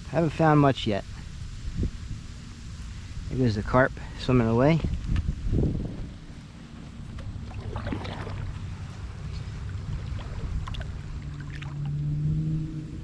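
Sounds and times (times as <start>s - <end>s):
low rumble of water and hull: 0.0s - 13.0s
steady low hum: 0.0s - 13.0s
paddle splashing water: 7.0s - 12.2s.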